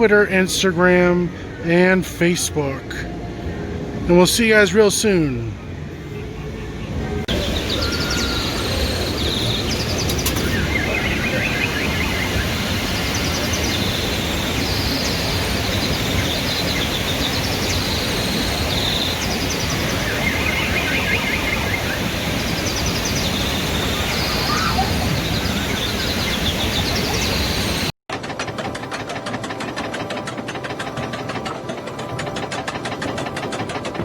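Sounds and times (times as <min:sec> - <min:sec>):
birds chirping in trills: 0:00.0 - 0:27.9
fast even rattling: 0:28.1 - 0:34.0.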